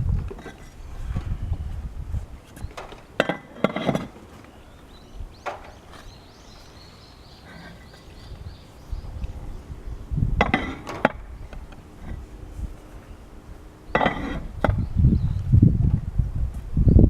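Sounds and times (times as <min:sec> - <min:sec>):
clay roof tiles clinking: 0:00.2 - 0:01.0, 0:02.5 - 0:08.5, 0:10.4 - 0:12.2, 0:13.9 - 0:14.8.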